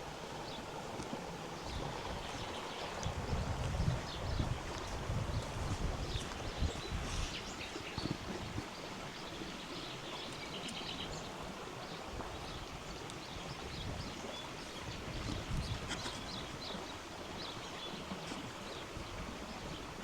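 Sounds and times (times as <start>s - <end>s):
river flowing: 0.0s - 20.0s
birdsong chirps: 1.6s - 20.0s.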